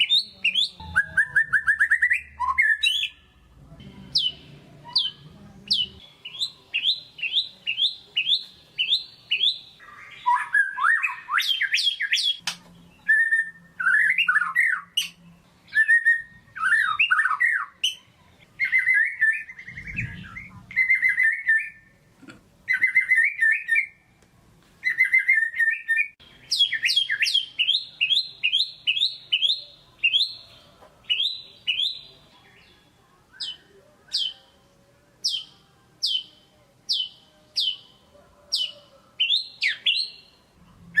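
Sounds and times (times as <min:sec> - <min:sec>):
bird singing whistled notes: 0:00.0 - 0:03.2, 0:04.1 - 0:18.0, 0:18.6 - 0:21.9, 0:22.7 - 0:24.0, 0:24.8 - 0:30.4, 0:31.1 - 0:32.7, 0:33.3 - 0:34.5, 0:35.2 - 0:37.9, 0:38.6 - 0:40.4.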